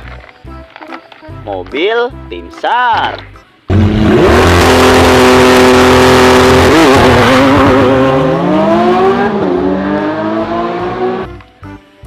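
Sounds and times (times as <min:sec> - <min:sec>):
car engine revving: 0:03.7 - 0:11.3.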